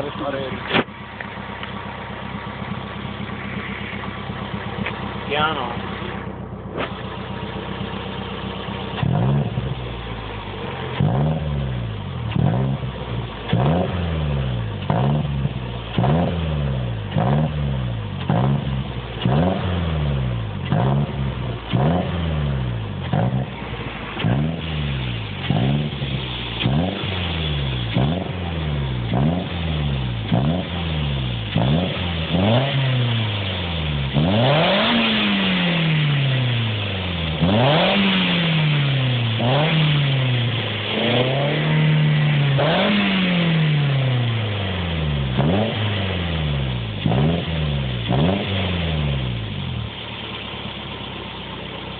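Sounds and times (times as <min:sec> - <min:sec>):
car engine revving: 0:00.0 - 0:51.9.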